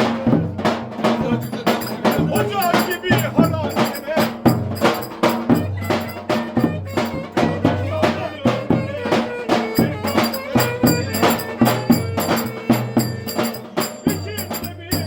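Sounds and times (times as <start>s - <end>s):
drum beating driving rhythm: 0.0s - 15.0s
folk dance melody: 1.4s - 7.8s, 9.6s - 15.0s.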